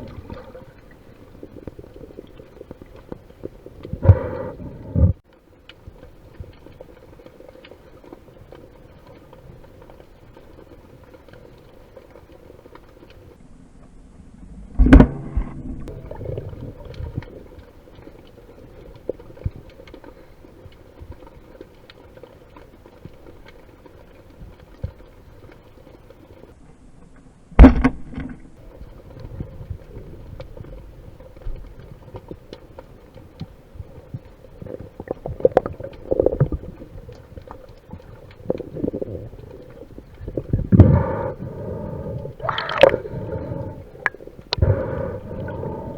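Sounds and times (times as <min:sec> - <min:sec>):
muffled underwater rush: 0:00.0 - 0:13.4, 0:14.2 - 0:26.6, 0:28.6 - 0:45.9
faint crackling: 0:28.6 - 0:45.9.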